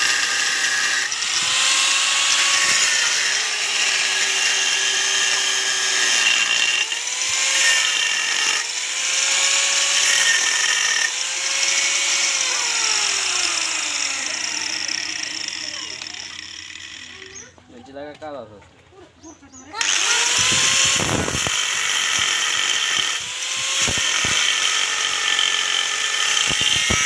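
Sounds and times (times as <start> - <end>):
power tool cutting steel: 0.0 - 17.5, 19.8 - 27.0.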